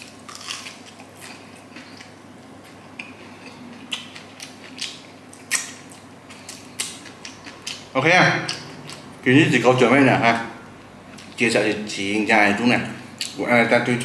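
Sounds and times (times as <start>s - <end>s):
person chewing fish: 0.0s - 7.9s.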